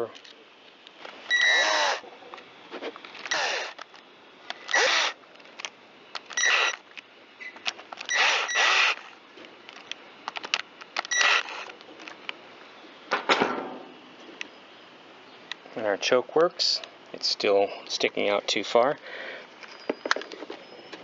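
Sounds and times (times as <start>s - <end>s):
electric screwdriver whirring: 1.3s - 2.0s, 3.2s - 3.9s, 4.6s - 5.2s, 6.2s - 6.8s, 8.0s - 9.2s, 11.0s - 11.7s.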